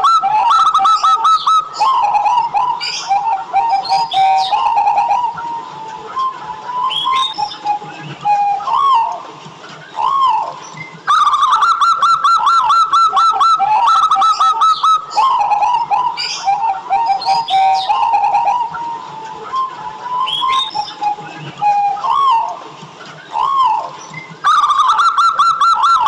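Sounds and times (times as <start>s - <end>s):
dove cooing: 0.0s - 9.2s, 9.9s - 22.6s, 23.2s - 26.0s.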